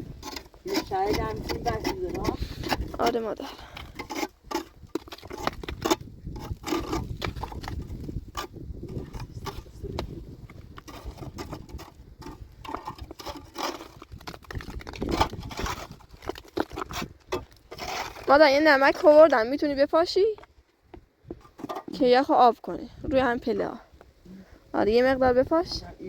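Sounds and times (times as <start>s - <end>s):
scraping and crackling: 0.0s - 19.6s, 21.3s - 22.3s
wind rumble on microphone: 0.0s - 19.8s, 24.6s - 26.0s.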